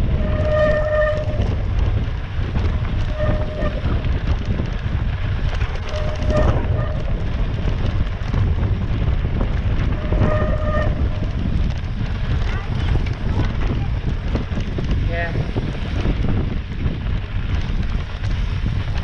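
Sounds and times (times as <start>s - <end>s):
bike rattling on rocky trail: 0.0s - 19.0s
wind buffeting microphone: 0.0s - 19.0s
bicycle brake squeals: 0.1s - 1.6s, 3.0s - 4.0s, 5.8s - 7.1s, 9.9s - 11.3s.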